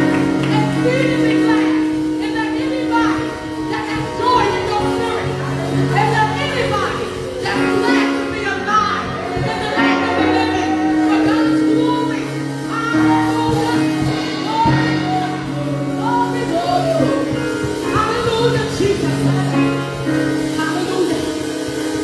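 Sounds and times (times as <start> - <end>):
sustained instrumental chords: 0.0 - 22.0
voices singing: 0.0 - 22.0.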